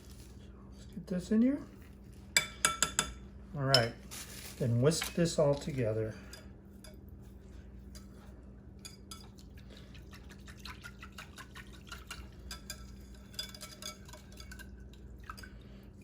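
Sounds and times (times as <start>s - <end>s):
whisk clinking against container: 10.6s - 15.5s.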